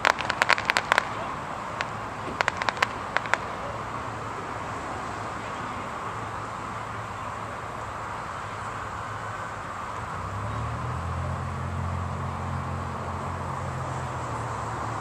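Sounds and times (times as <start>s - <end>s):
fireworks cracking: 0.0s - 8.0s
highway traffic: 0.0s - 15.0s.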